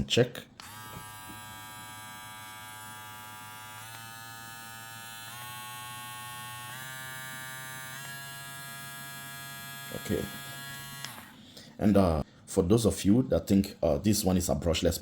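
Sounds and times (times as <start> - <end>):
hair clipper buzzing: 0.6 - 11.4.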